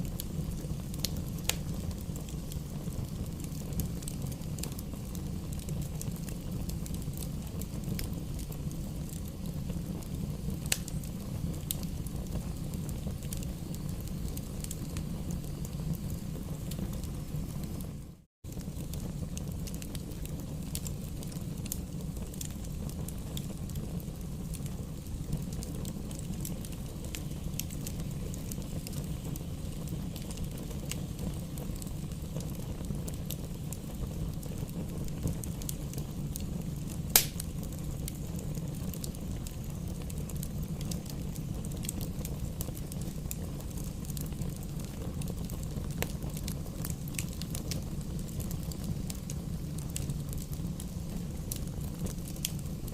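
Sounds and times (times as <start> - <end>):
fire flames rumbling: 0.0 - 52.9
firewood crackling: 0.0 - 52.9
sharp pop of firewood: 37.2 - 37.4.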